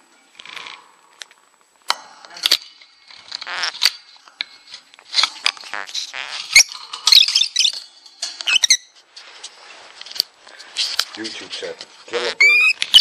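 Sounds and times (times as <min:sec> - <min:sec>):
bird squeaking and chirping: 0:03.4 - 0:03.8, 0:05.7 - 0:07.8, 0:08.4 - 0:09.0, 0:12.1 - 0:13.0.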